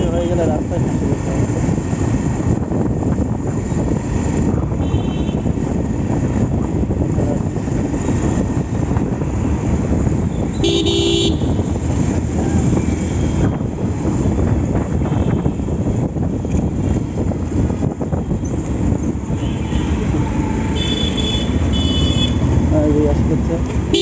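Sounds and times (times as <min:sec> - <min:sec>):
motorcycle engine and wind rumble: 0:00.0 - 0:24.0
vehicle horn: 0:04.7 - 0:05.5, 0:10.5 - 0:11.7, 0:19.3 - 0:22.4.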